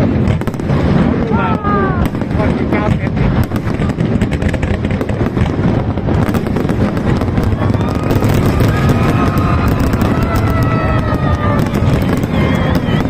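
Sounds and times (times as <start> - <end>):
fireworks crackling pops: 0.0 - 13.0
low rumble of fireworks bursts: 0.0 - 13.0.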